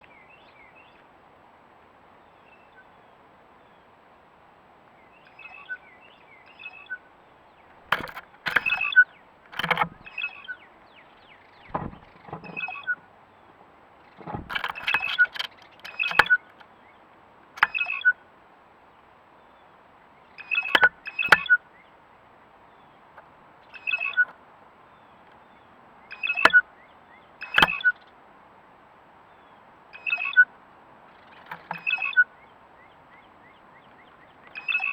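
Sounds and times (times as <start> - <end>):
birds calling harshly: 5.0 - 18.3, 19.4 - 28.2, 29.2 - 34.9
sharp knocks: 11.7 - 12.9, 14.2 - 16.4.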